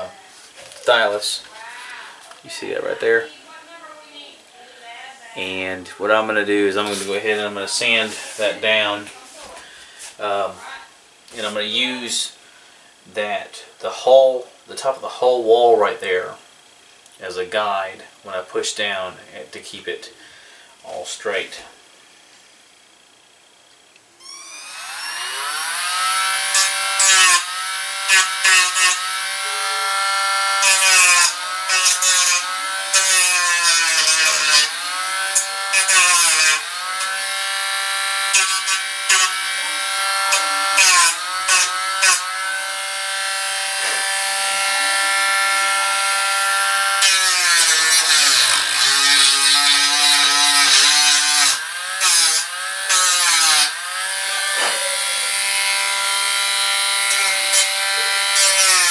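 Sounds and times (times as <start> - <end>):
scratchy grinding of sanding: 6.8 - 8.8, 26.1 - 37.2, 38.2 - 42.3, 47.0 - 53.8
rotary tool whining: 24.2 - 58.9.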